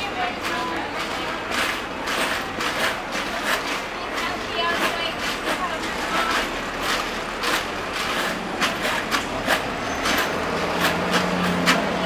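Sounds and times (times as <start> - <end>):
city street traffic: 0.0 - 12.0
heavy vehicle engine humming: 5.5 - 12.0.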